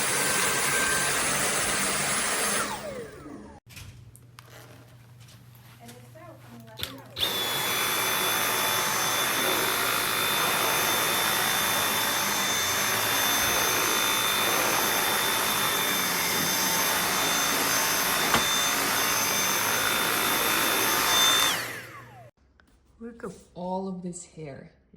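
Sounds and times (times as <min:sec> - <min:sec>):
vacuum cleaner running: 0:00.0 - 0:03.6, 0:07.2 - 0:22.3.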